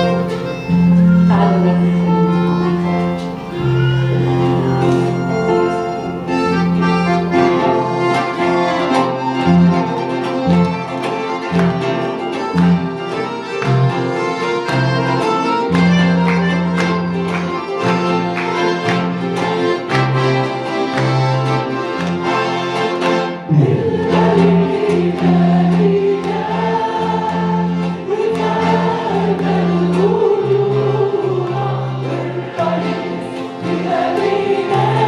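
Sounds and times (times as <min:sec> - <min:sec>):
string-like keyboard melody: 0:00.0 - 0:35.0
bass notes: 0:23.2 - 0:27.0
steady percussive beat: 0:23.4 - 0:25.8.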